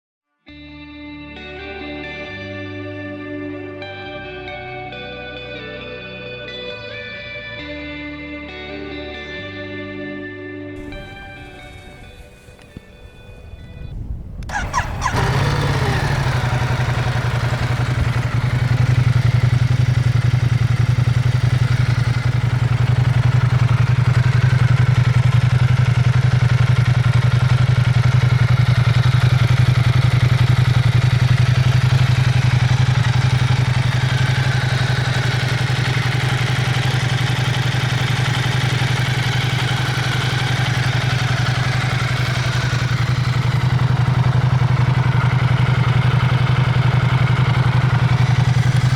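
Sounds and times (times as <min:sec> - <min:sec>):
motorcycle engine starting and idling: 0:10.8 - 0:48.9.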